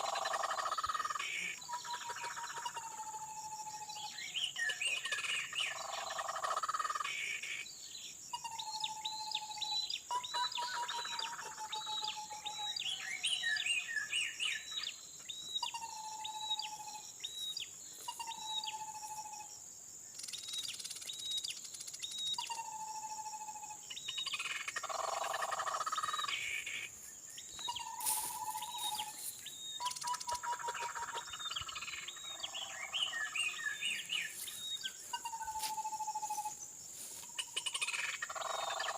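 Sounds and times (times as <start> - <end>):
bird whistled notes and chirps: 2.9 - 6.3, 7.1 - 19.5, 20.1 - 38.9
high insect drone: 10.6 - 38.9.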